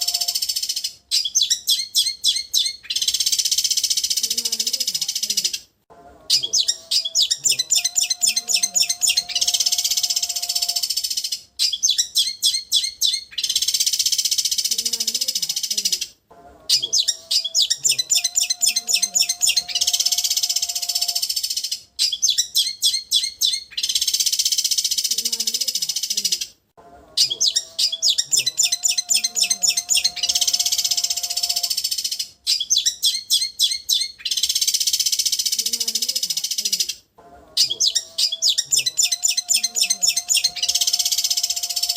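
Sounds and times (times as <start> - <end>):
bird chirping and trilling: 0.0 - 5.7, 6.3 - 26.5, 27.1 - 41.9
bird singing high vibrating trill: 16.8 - 21.6, 27.2 - 34.0.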